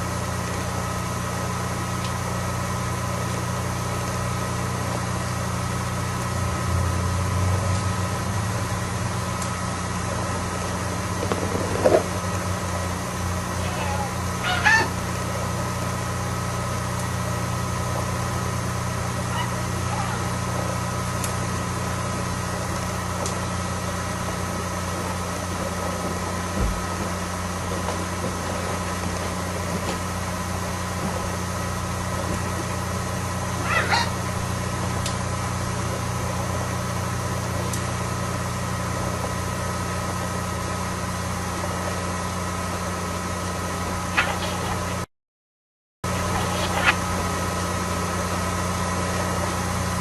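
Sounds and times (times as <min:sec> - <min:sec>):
low hum and hiss: 0:00.0 - 0:45.1, 0:46.1 - 0:50.0
budgerigar chirps: 0:13.6 - 0:15.0, 0:33.6 - 0:34.2, 0:44.2 - 0:44.9, 0:46.2 - 0:47.0.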